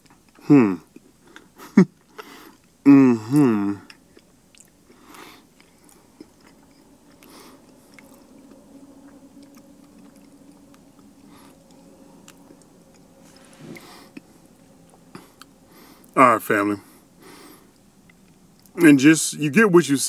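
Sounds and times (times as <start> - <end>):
chewing food: 0.0 - 16.2, 17.2 - 18.8
faint steady hum: 0.0 - 20.0
soft breaths: 1.2 - 2.7, 4.8 - 18.0.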